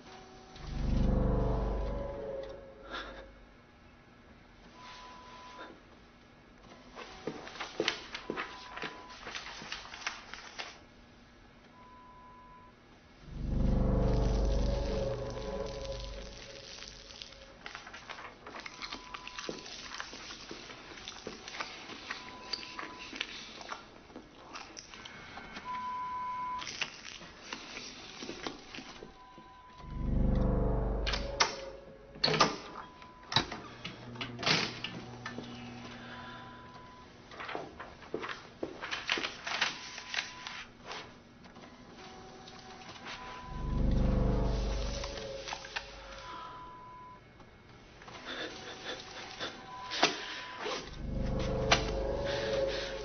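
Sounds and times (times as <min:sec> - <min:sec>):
music: 0:00.6 - 0:03.3, 0:13.3 - 0:17.4, 0:29.8 - 0:32.2, 0:43.5 - 0:46.2, 0:51.0 - 0:53.0
faint steady beep tone: 0:25.6 - 0:26.6, 0:43.2 - 0:47.3.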